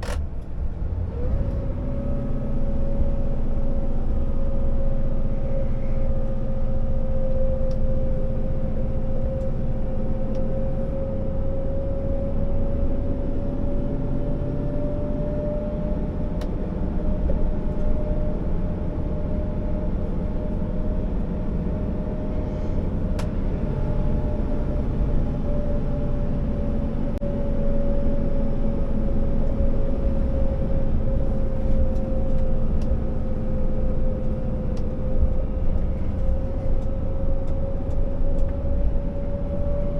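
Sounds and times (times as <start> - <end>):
truck diesel engine rumbling: 0.0 - 39.9.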